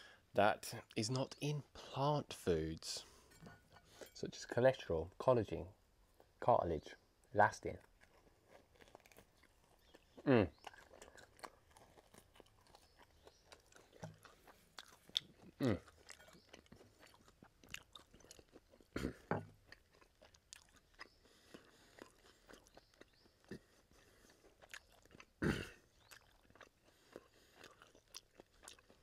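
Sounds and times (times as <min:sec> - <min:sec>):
person chewing ribs: 0:07.7 - 0:29.0
loud crunches: 0:07.8 - 0:20.7.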